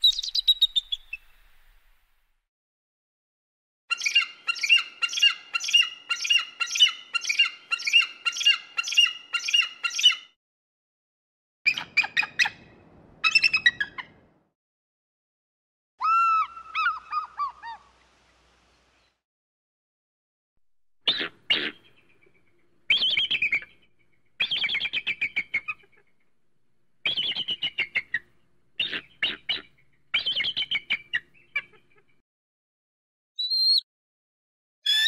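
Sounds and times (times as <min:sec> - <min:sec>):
bird calling: 0:11.7 - 0:14.4, 0:16.0 - 0:19.2, 0:21.0 - 0:23.8, 0:24.4 - 0:26.1, 0:27.0 - 0:32.1.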